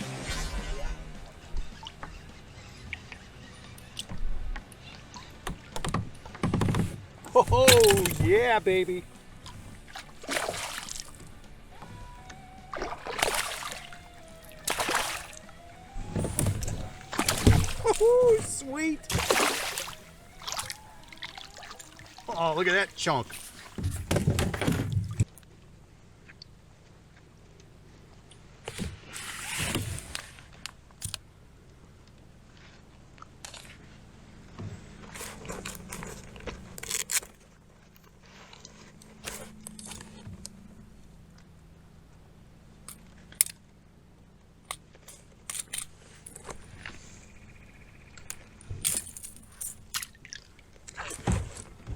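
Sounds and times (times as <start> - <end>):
fishing gear clicking and scraping: 6.6 - 10.2, 35.2 - 37.5, 44.7 - 47.0, 48.2 - 50.2
fish splashing at water surface: 7.5 - 8.3, 10.1 - 11.2, 12.8 - 15.4, 17.1 - 18.2, 19.1 - 22.3.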